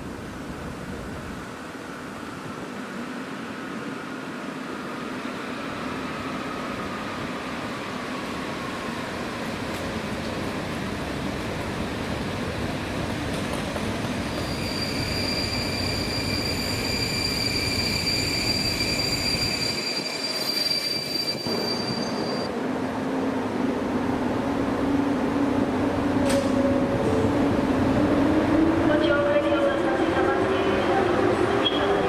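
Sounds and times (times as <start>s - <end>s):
train rumbling: 0.0s - 32.0s
wheels squealing: 14.2s - 22.5s.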